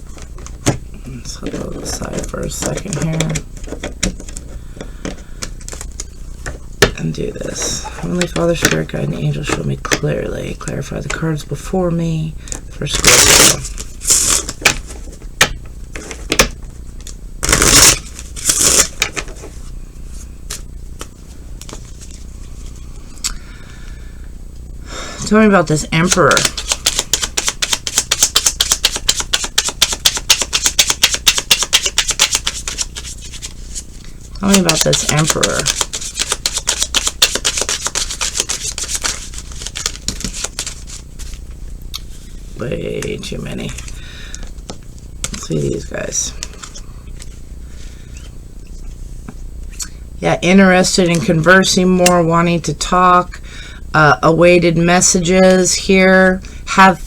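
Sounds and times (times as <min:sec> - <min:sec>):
cards shuffling: 0:00.1 - 0:10.1, 0:12.5 - 0:15.3, 0:15.9 - 0:19.6, 0:26.0 - 0:42.2, 0:43.0 - 0:47.4.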